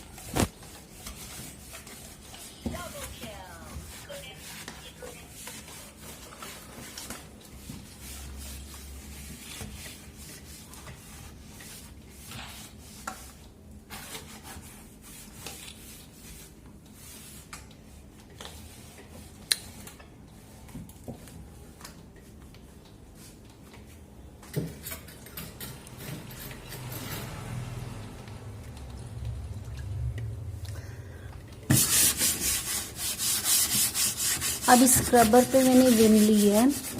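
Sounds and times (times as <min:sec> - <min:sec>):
cloth wiping surfaces: 0:00.0 - 0:13.0, 0:31.7 - 0:36.9.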